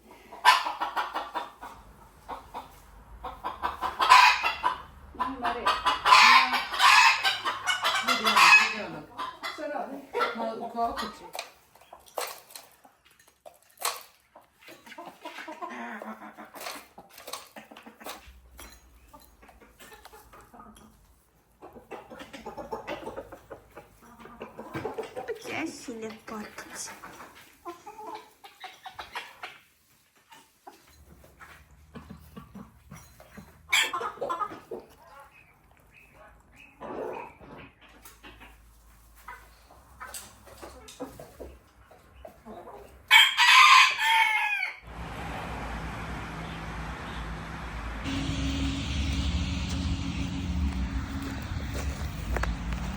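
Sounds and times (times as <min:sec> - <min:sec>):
chickens clucking: 0:00.0 - 0:52.9
rooster crowing: 0:43.1 - 0:52.9
low hum and hiss: 0:44.9 - 0:52.9.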